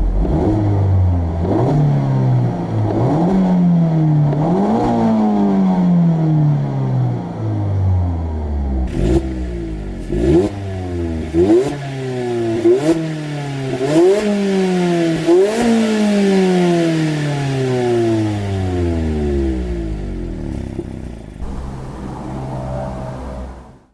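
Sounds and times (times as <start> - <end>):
car engine revving: 0.0 - 23.9
car engine idling: 8.8 - 14.2, 17.1 - 23.6.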